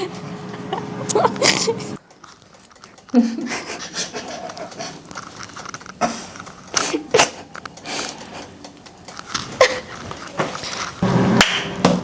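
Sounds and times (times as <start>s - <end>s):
women laughing: 0.0s - 2.0s, 3.1s - 5.1s, 6.7s - 7.5s, 9.5s - 10.1s.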